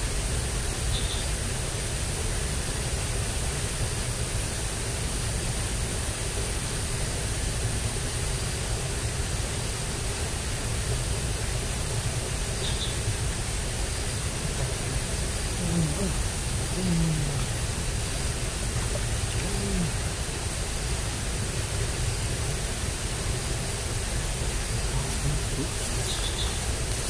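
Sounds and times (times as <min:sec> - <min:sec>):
high hiss: 0:11.1 - 0:27.0.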